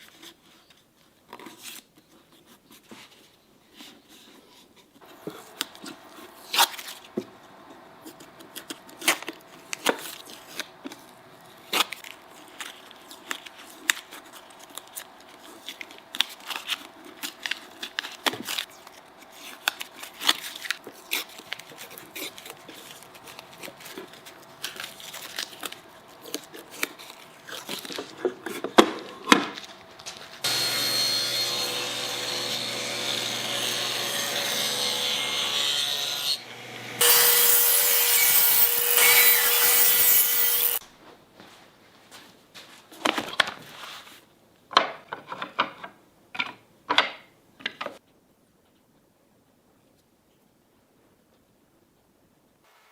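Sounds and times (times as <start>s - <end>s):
power tool working wood: 30.4s - 40.8s.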